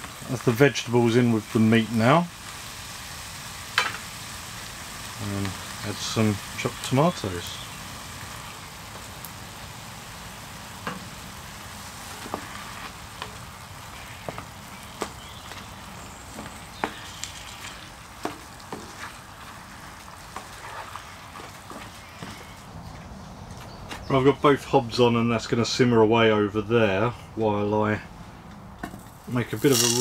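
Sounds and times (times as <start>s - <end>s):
food sizzling in a frying pan: 0.0s - 22.6s, 29.2s - 30.0s.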